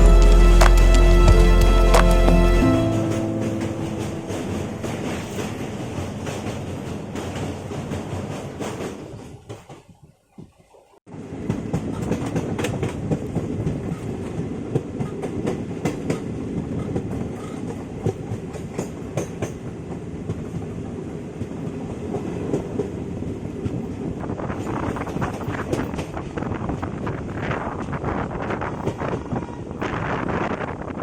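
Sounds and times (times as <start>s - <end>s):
train rumbling on track: 0.0s - 10.0s, 11.1s - 31.0s
wheels clicking over rail joints: 5.3s - 10.0s, 11.3s - 29.9s.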